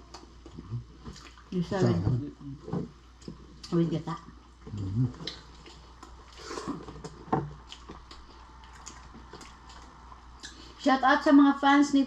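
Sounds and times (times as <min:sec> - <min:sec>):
chewing: 0:00.0 - 0:01.5, 0:04.4 - 0:10.8
low murmur: 0:04.7 - 0:05.3.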